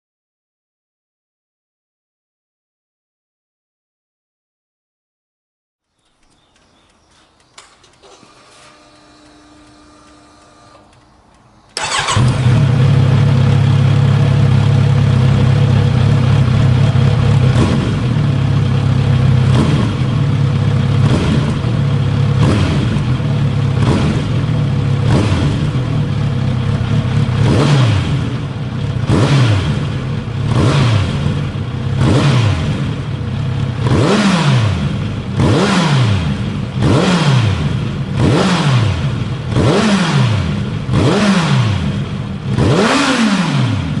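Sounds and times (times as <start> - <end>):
motorcycle engine revving: 11.8 - 44.0.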